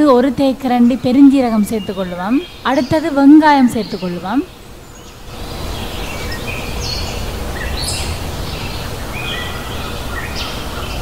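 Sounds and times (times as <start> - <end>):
birds whistling: 1.7 - 11.0
low outdoor rumble: 5.2 - 11.0.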